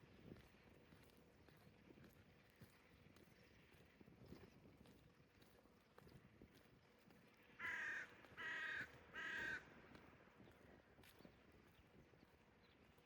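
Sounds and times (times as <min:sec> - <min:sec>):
crow cawing: 0:07.6 - 0:09.6.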